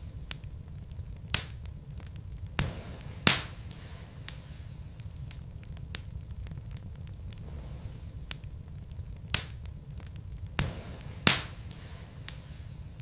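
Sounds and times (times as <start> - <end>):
fire crackling and popping: 0.0 - 13.0
low rumble of fire: 0.0 - 13.0.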